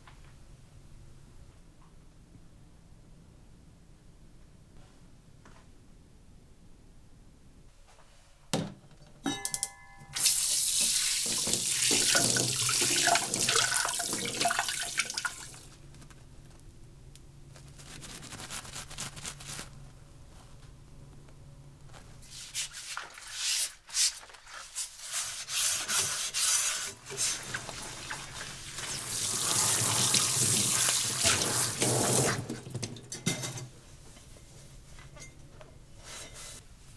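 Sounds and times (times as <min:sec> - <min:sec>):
splashing under tap: 0:10.2 - 0:15.7, 0:27.1 - 0:33.2
water running into sink: 0:10.2 - 0:15.7, 0:27.1 - 0:33.2.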